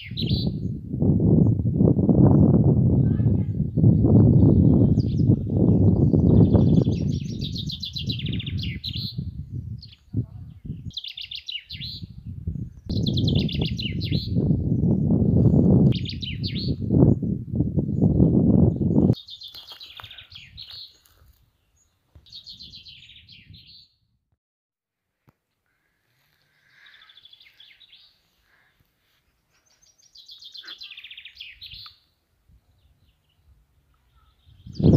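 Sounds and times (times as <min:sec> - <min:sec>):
songbirds trilling: 0:09.8 - 0:14.5, 0:17.9 - 0:23.8, 0:25.7 - 0:28.9, 0:29.5 - 0:34.9
songbird trilling: 0:12.9 - 0:14.4.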